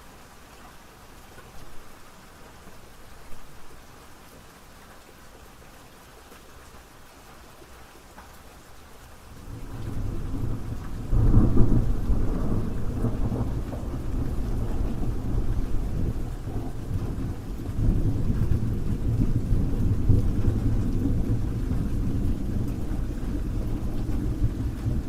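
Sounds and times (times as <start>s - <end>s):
steady rain falling: 0.0s - 25.0s
low rumble of thunder: 9.4s - 25.0s.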